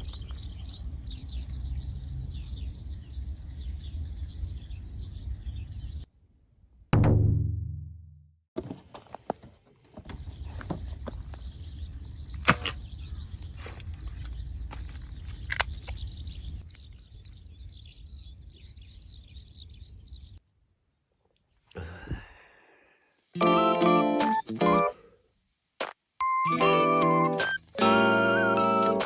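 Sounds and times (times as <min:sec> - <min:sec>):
bird singing: 0:00.0 - 0:06.2, 0:09.7 - 0:20.4.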